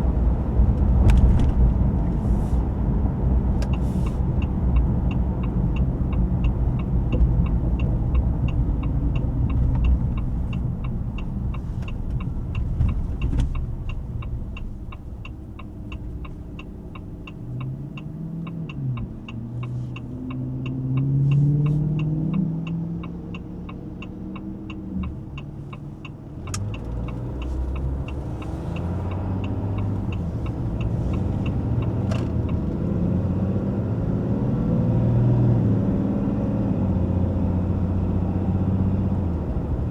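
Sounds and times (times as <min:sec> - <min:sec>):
diesel truck engine running: 0:00.0 - 0:20.1, 0:26.0 - 0:33.5
steady ticking: 0:03.6 - 0:21.1, 0:22.3 - 0:32.9.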